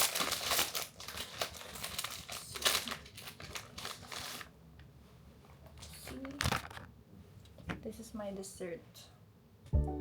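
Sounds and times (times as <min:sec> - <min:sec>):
plastic packaging crinkling: 0:00.0 - 0:04.5.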